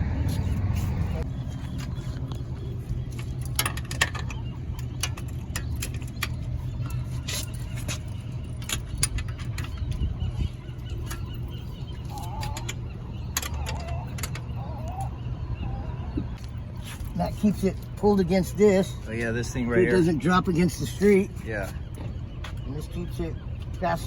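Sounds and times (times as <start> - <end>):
steady low hum: 0.0 - 24.0
metal hardware clicking and knocking: 3.1 - 10.1, 10.9 - 14.6.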